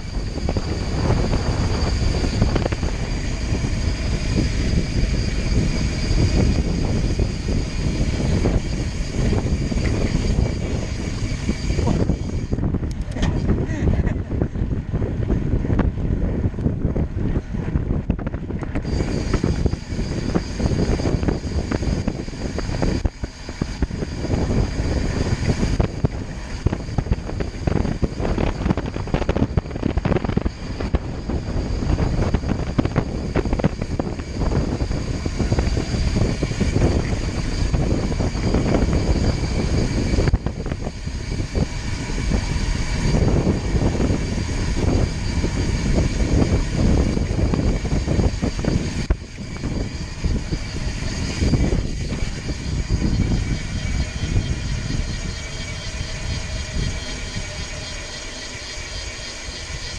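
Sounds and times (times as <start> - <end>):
vehicle rumbling at speed: 0.0 - 58.4
high whine: 0.0 - 59.9
wind buffeting microphone: 0.0 - 59.9.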